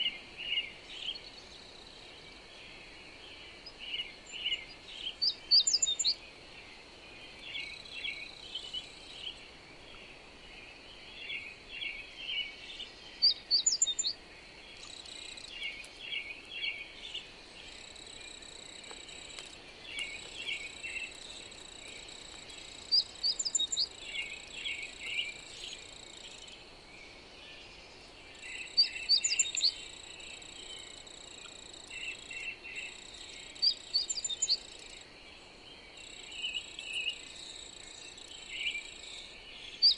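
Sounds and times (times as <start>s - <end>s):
faint hiss: 0.0s - 39.9s
soft bird chirping: 0.0s - 39.9s
insect trill: 11.3s - 26.7s, 28.2s - 39.9s.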